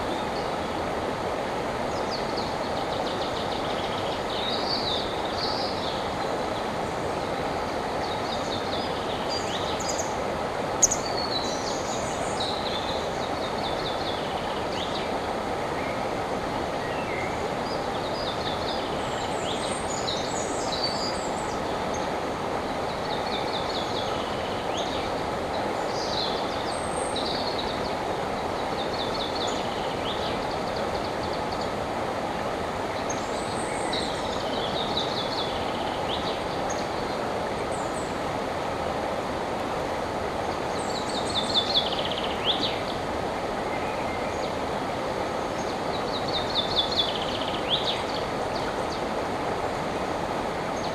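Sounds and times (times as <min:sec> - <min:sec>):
river water rushing: 0:00.0 - 0:50.9
songbirds trilling: 0:00.0 - 0:50.9.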